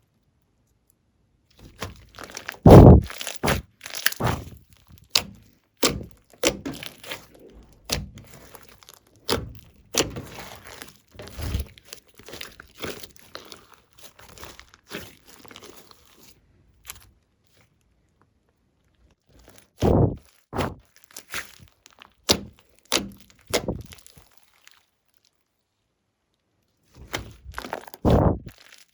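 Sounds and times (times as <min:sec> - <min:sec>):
slime being squeezed by hand: 0:01.6 - 0:17.0, 0:27.0 - 0:28.9
slime popping and crackling: 0:01.6 - 0:17.0, 0:27.0 - 0:28.9.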